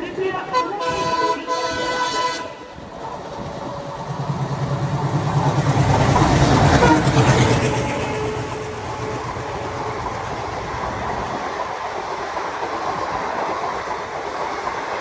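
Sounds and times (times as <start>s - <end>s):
throbbing locomotive engine: 0.0s - 15.0s
wheel and rail noise: 0.0s - 15.0s
diesel locomotive horn: 0.4s - 2.9s, 5.8s - 10.9s.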